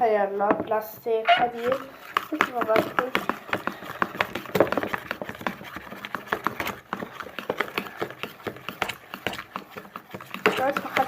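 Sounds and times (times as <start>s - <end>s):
spoon knocking plastic tub: 0.5s - 11.0s.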